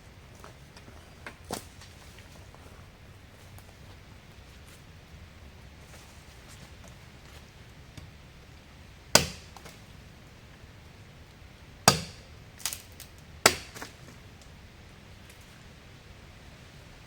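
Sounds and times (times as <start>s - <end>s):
faint rain hiss: 0.0s - 17.0s
hatchet chopping wood: 9.1s - 9.8s, 11.8s - 14.1s.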